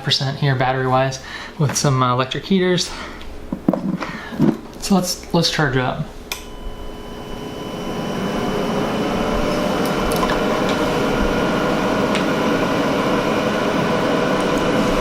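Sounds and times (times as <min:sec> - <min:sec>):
cooling fans whirring: 0:00.0 - 0:15.0
click: 0:06.3 - 0:06.5.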